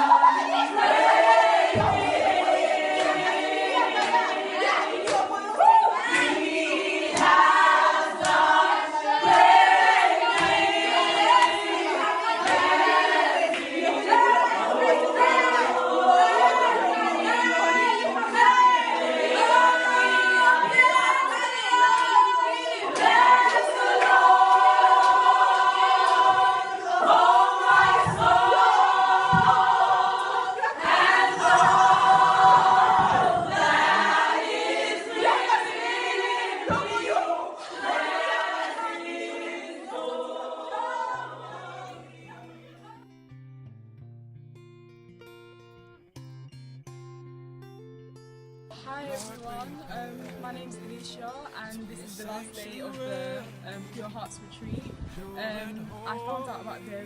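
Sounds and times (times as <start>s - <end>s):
group of voices singing: 0.0s - 43.0s, 48.8s - 57.0s.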